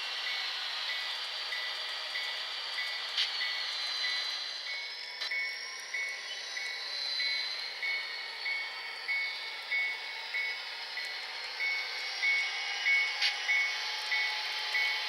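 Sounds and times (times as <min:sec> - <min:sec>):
model train running: 0:00.0 - 0:15.0.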